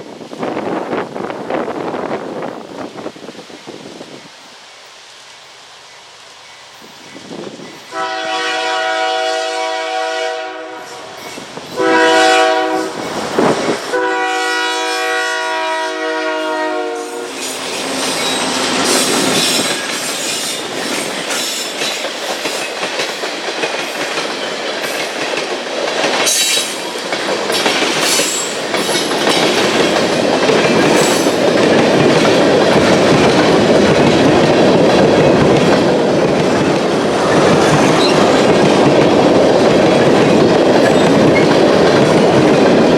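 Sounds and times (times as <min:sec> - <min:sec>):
freight train rumbling past: 0:00.0 - 0:42.9
train horn blasts: 0:07.8 - 0:19.2
wheels clicking over rail joints: 0:17.4 - 0:42.9.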